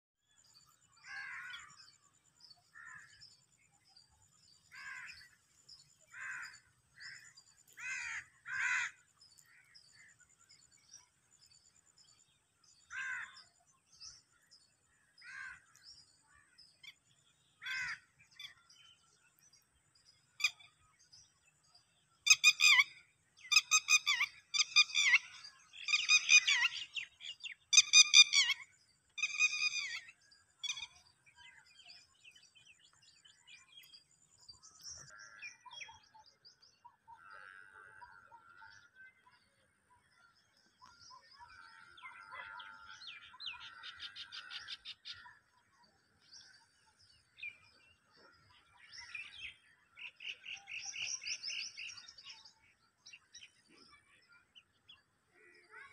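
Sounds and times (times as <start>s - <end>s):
bird chirping and chatter: 0.4s - 55.9s
wild birds calling: 0.4s - 55.9s
harsh repeated bird calls: 6.1s - 10.1s, 22.3s - 31.1s.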